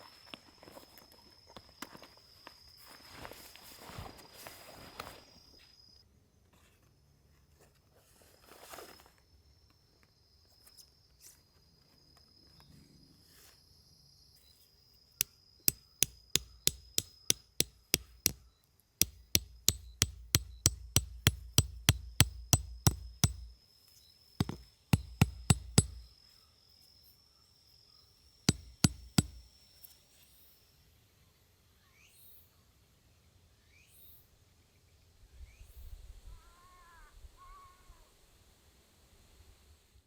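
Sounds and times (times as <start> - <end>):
hammer blows with metallic ring: 19.0 - 23.5, 24.4 - 26.0, 28.5 - 29.5.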